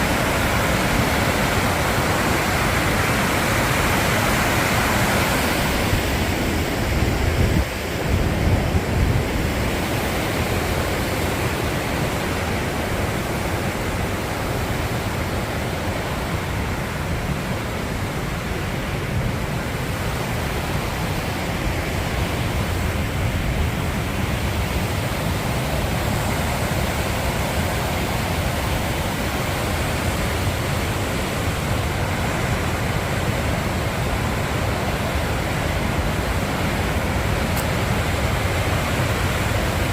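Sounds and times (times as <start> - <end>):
wind buffeting microphone: 0.0 - 15.4
waterfall rushing: 0.0 - 39.9.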